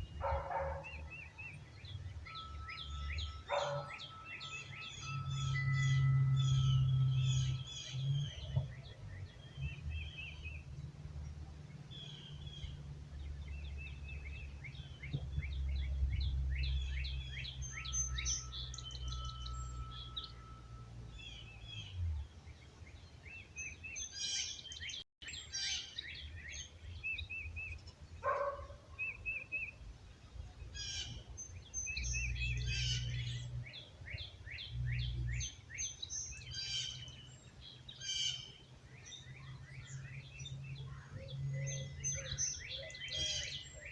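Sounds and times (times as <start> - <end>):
wind rumble on microphone: 0.0 - 20.6
songbirds chirping and trilling: 0.0 - 43.9
wind chime ringing: 2.0 - 8.5, 17.1 - 21.7.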